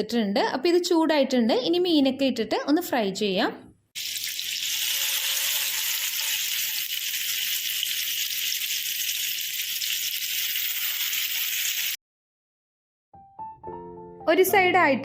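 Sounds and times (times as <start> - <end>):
fish sizzling in hot oil: 4.0 - 12.0.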